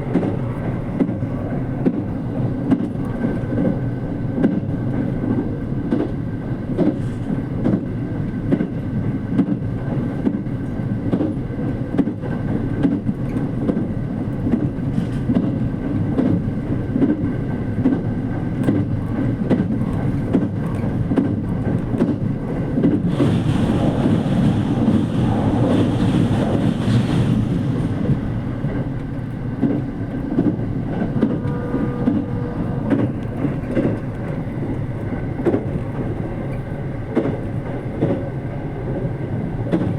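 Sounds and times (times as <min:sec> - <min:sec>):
train running rumble: 0:00.0 - 0:39.9
train rushing noise: 0:00.0 - 0:39.9.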